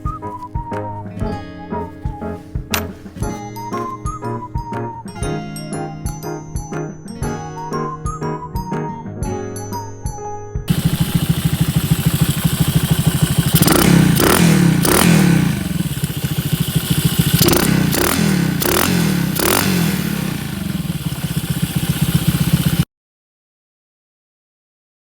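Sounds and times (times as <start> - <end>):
engine throttle blips: 10.7 - 22.8
motorcycle engine idling: 10.7 - 22.8.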